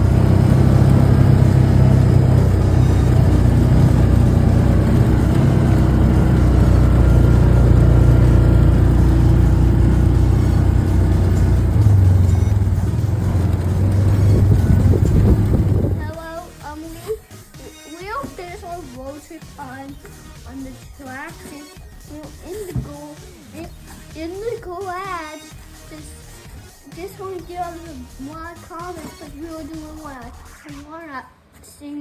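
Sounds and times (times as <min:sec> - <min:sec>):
road noise: 0:00.0 - 0:16.3
vehicle engine droning: 0:00.0 - 0:16.4.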